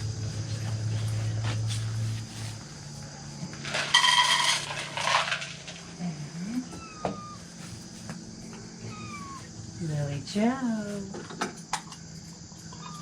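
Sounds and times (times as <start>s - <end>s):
dry cat food clattering into dish: 3.6s - 5.8s.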